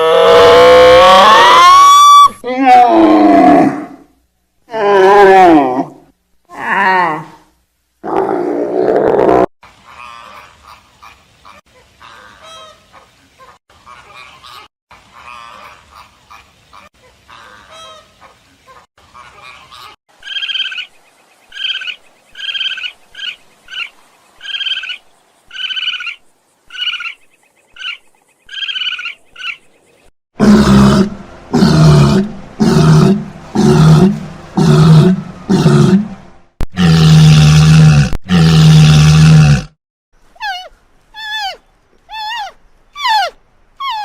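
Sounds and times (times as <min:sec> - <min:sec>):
deep roaring animal calls: 0:30.4 - 0:39.8
short animal calls: 0:40.4 - 0:44.0.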